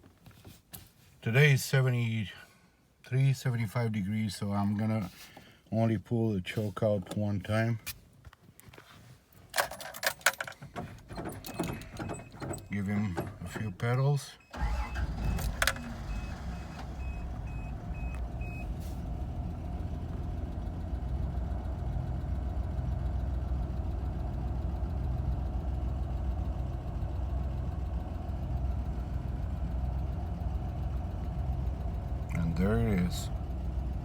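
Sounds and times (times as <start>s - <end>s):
car engine idling: 14.6s - 34.0s.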